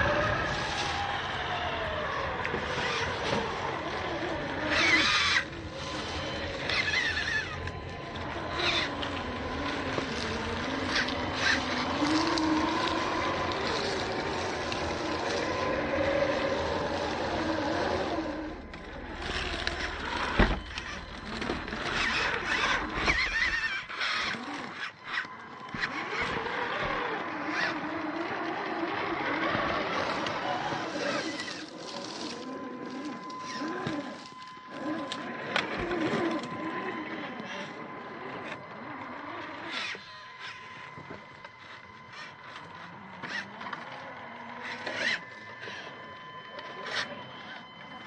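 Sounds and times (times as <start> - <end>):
rc car electric motor whining: 0.0 - 48.0
scrapes and clicks: 2.2 - 48.0.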